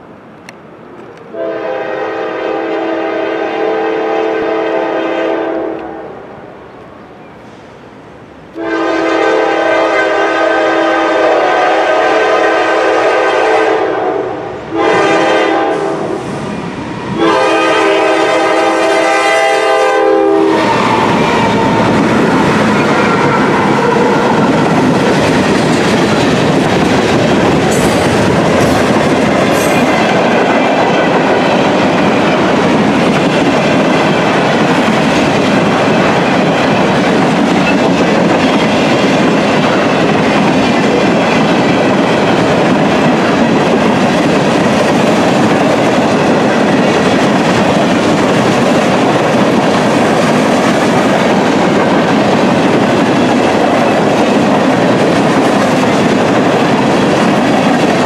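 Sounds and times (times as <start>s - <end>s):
train cars rumbling past: 0.0s - 58.0s
locomotive air horn: 1.3s - 6.2s, 8.6s - 16.4s, 17.2s - 22.0s, 22.7s - 24.6s.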